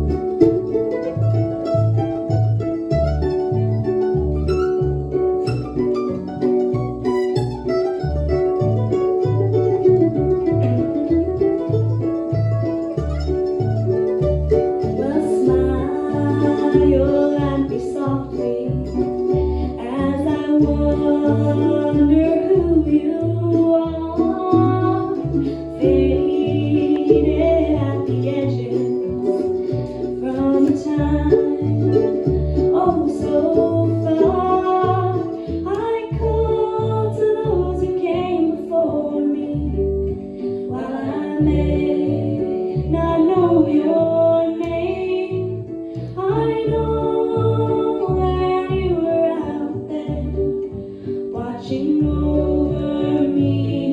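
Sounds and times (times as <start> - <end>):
bluegrass string trio playing: 0.0 - 53.9
woman singing: 14.7 - 53.9.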